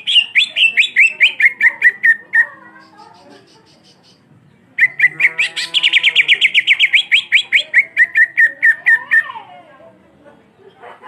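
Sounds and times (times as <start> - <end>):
bird singing rapid whistled notes: 0.0 - 2.5, 4.8 - 9.2.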